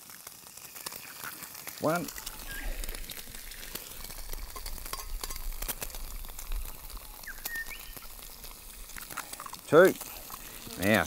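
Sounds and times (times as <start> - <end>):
crackle of spitting fat: 0.0 - 11.0
food frying in a pan: 0.0 - 11.0
bird chirping: 2.4 - 2.8, 6.6 - 8.2.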